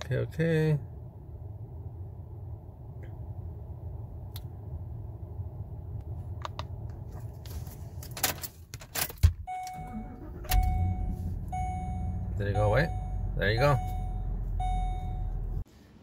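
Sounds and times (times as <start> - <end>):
dashboard chime: 9.5 - 15.5
engine cranking and starting: 9.7 - 11.8
car engine idling: 9.8 - 15.6.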